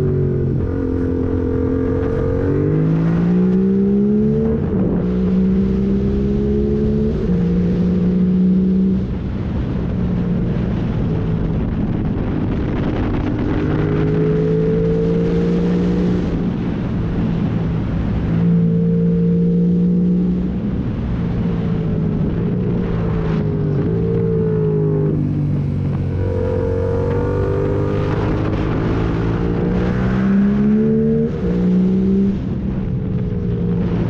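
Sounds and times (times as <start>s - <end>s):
motorcycle engine revving: 0.0s - 9.1s, 22.1s - 34.0s.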